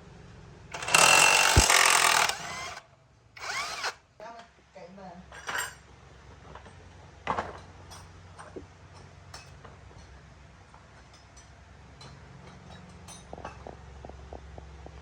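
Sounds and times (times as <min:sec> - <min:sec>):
metal tools clinking and knocking: 0:05.3 - 0:05.8, 0:10.9 - 0:13.7.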